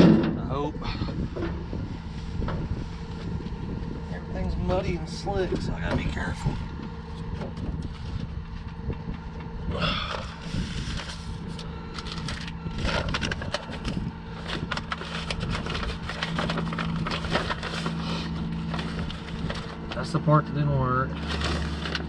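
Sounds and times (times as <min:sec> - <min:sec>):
engine humming: 0:00.0 - 0:22.0
crunching and clicking: 0:11.0 - 0:20.2, 0:21.1 - 0:22.0.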